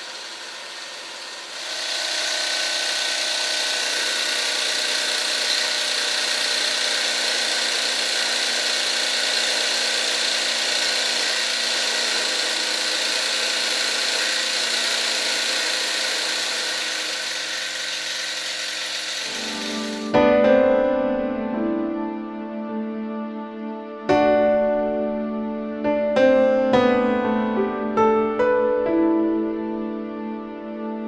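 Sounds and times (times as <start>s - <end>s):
toy steam engine whirring: 0.0s - 20.1s.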